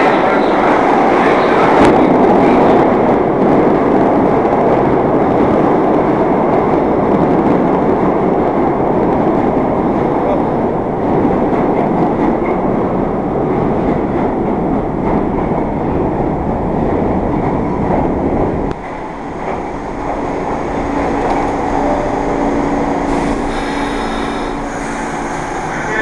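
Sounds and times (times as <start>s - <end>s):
subway train wheels rumbling: 0.0s - 26.0s
steady hum: 18.1s - 26.0s.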